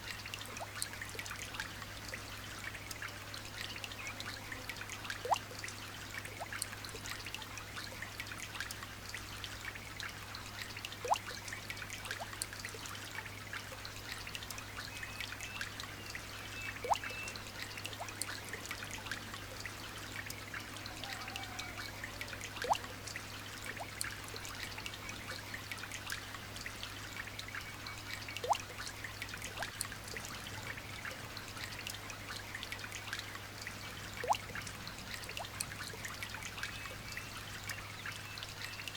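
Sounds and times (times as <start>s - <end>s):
light rain pattering: 0.0s - 38.9s
water trickling: 0.0s - 38.9s
drip plinking into water: 5.1s - 8.8s, 10.8s - 20.4s, 22.4s - 25.5s, 26.1s - 30.3s, 31.0s - 38.9s.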